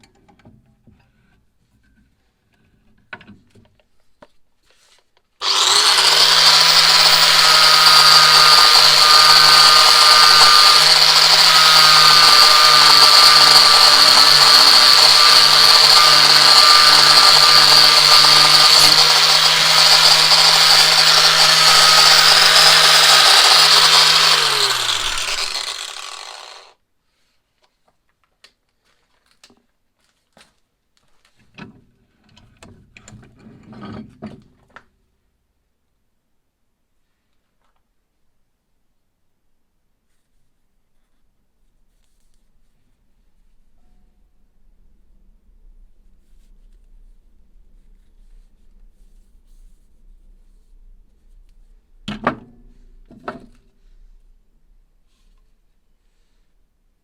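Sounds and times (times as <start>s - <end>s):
power tool motor running: 5.4s - 26.8s.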